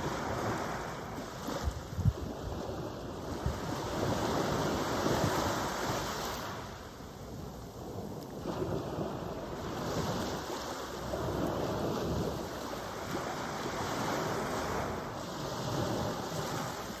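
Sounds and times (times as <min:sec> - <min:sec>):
ocean surf washing ashore: 0:00.0 - 0:17.0
wind buffeting microphone: 0:00.0 - 0:17.0.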